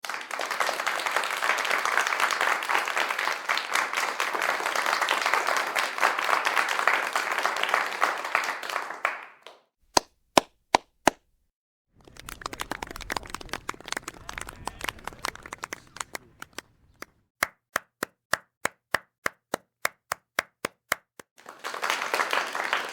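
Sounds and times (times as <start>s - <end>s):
crowd applause: 0.0s - 9.6s, 12.0s - 17.1s, 21.4s - 22.9s.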